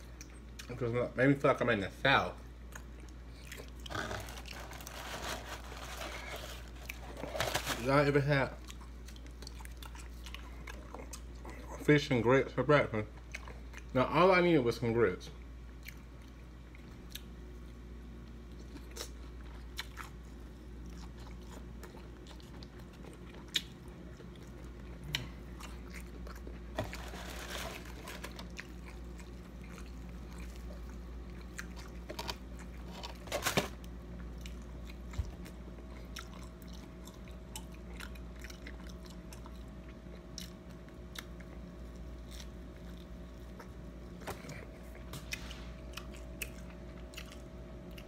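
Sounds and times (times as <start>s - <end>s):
crunchy bites and chewing: 2.7s - 8.0s.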